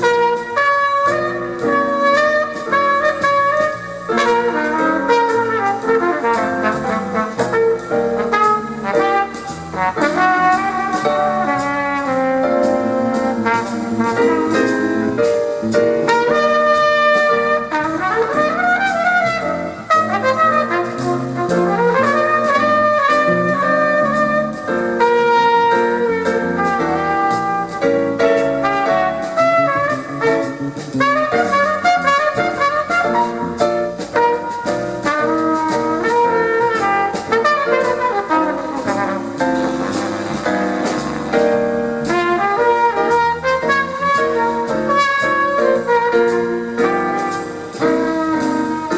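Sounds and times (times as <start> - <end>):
bass: 0.0 - 48.9
drums with cymbal strokes: 0.0 - 48.9
flugelhorn solo: 0.0 - 48.9
piano: 0.0 - 48.9.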